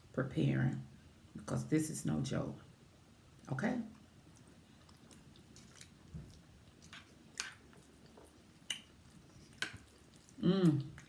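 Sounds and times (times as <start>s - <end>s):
person chewing: 3.9s - 11.0s
mouth clicks and smacks: 8.6s - 11.0s.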